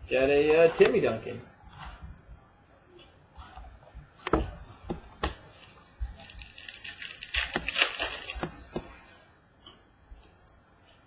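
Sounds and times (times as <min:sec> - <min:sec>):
cards rustling: 0:05.6 - 0:08.6.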